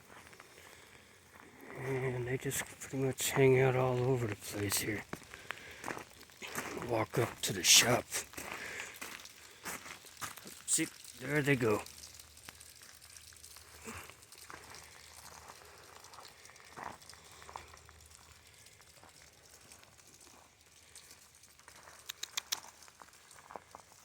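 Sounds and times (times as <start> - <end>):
light rain patter: 0.0 - 24.0
soft ticks: 16.1 - 23.3
sharp clicks: 22.0 - 22.8.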